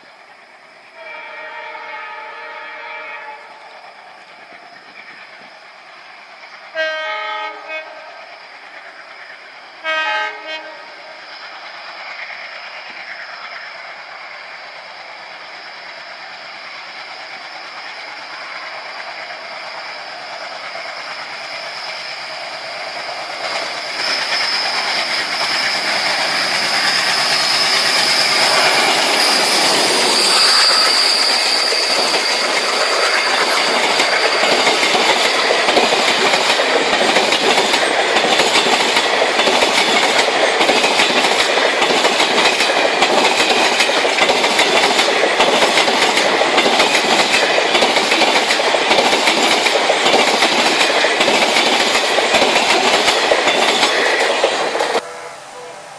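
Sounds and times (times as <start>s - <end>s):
train wheels clattering on rails: 15.5s - 55.0s
thin high whine: 17.6s - 35.8s.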